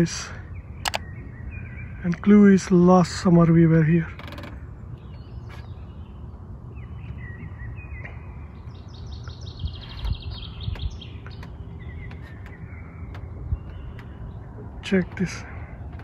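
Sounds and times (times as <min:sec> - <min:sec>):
songbirds chirping and trilling: 0:00.0 - 0:16.0
steady low rumble: 0:03.2 - 0:16.0.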